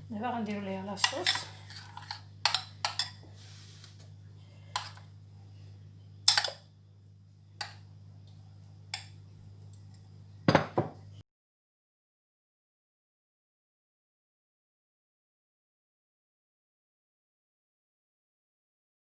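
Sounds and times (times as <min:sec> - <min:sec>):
steady low hum: 0:00.0 - 0:11.2
spoon clinking against bowl: 0:01.0 - 0:03.2, 0:06.3 - 0:06.6.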